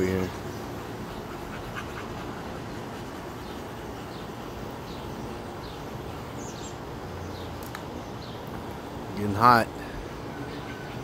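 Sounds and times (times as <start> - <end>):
steady outdoor hiss: 0.0 - 11.0
small bird chirping: 2.9 - 8.6.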